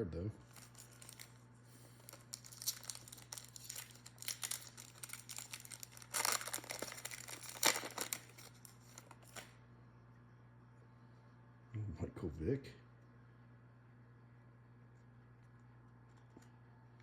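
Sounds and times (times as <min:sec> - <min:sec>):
low steady hum: 0:00.0 - 0:17.0
crinkling plastic wrappers: 0:00.4 - 0:09.6.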